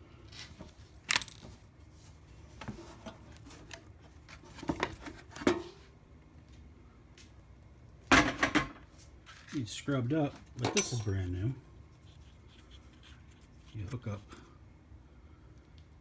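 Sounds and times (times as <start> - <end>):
small hard objects clicking: 1.1 - 1.5.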